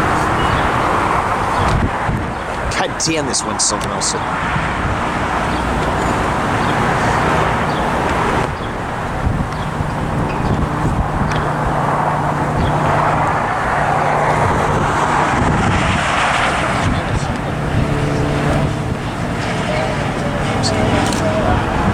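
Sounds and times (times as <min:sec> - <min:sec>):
passing vehicles engine roar: 0:00.0 - 0:21.9
wind on microphone: 0:00.0 - 0:21.9.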